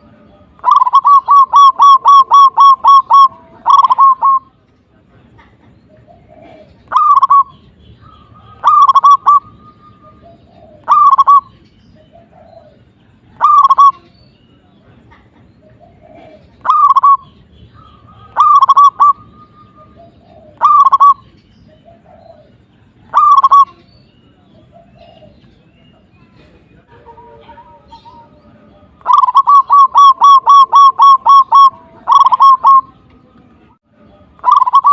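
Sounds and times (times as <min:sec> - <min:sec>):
dove cooing: 0:00.0 - 0:04.5, 0:05.9 - 0:14.1, 0:15.6 - 0:23.9, 0:24.6 - 0:25.4, 0:29.0 - 0:33.0, 0:34.4 - 0:34.9.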